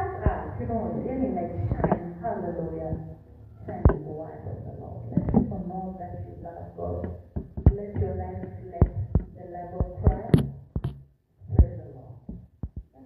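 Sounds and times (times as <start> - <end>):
voices: 0.0 - 10.5, 11.5 - 12.3
sharp thumps: 1.6 - 3.1, 6.9 - 13.0.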